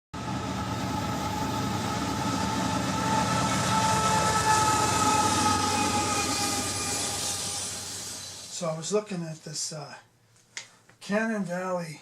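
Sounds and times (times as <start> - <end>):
train rumbling: 0.2 - 8.8
steady high tones: 0.3 - 9.0.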